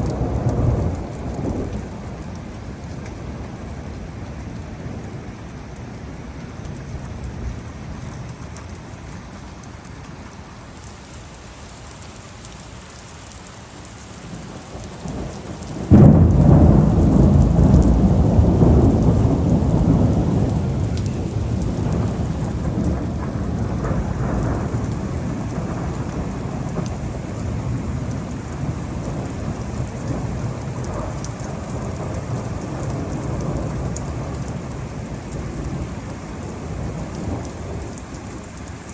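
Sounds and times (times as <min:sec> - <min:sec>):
rolling thunder: 0:00.0 - 0:05.3, 0:14.3 - 0:38.6
steady rain falling: 0:00.0 - 0:38.9
thunderclap: 0:15.0 - 0:34.6.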